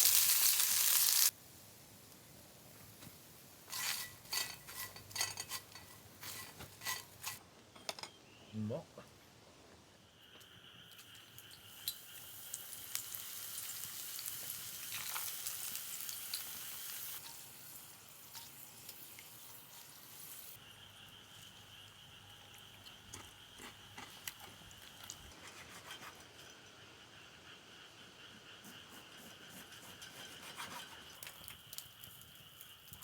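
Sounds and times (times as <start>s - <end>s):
food sizzling in hot oil: 0.0s - 7.4s, 10.6s - 25.3s.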